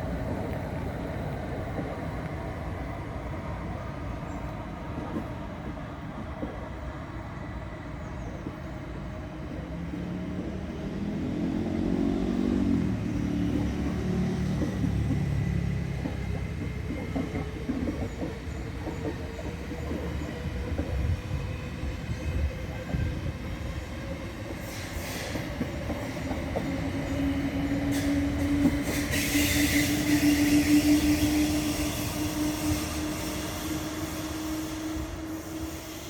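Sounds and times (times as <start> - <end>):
train rumbling past: 0.0 - 36.0
wheels clattering on rails: 11.4 - 21.1
hiss: 24.5 - 26.3, 27.9 - 36.0.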